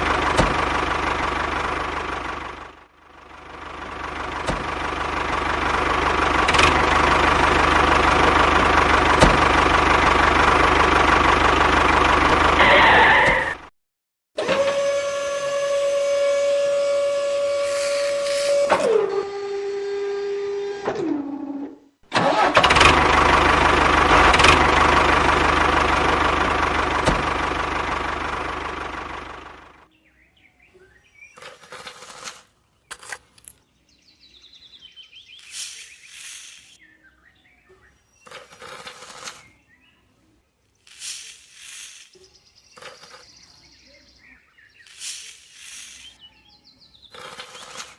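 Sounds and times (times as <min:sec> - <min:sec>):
small electric motor whining: 0:14.4 - 0:20.8.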